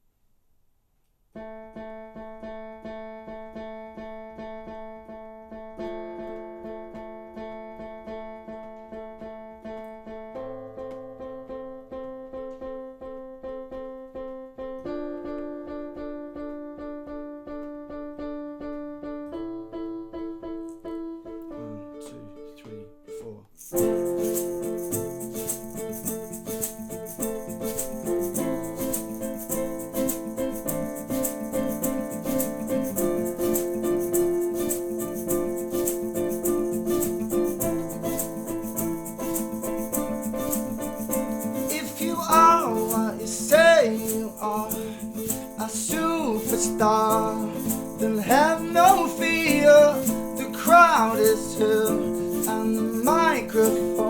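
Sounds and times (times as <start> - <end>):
shaker: 23.6 - 54.0.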